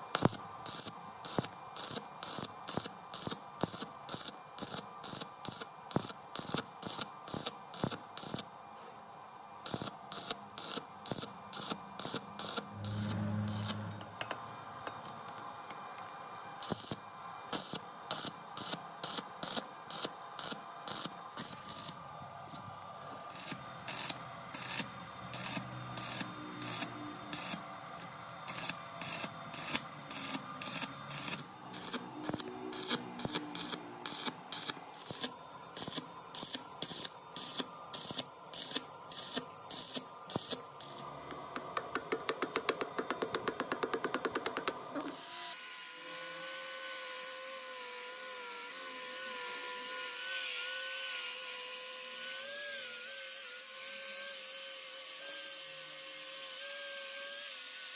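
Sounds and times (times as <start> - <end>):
small electric motor whining: 9.7 - 14.0, 45.0 - 57.9.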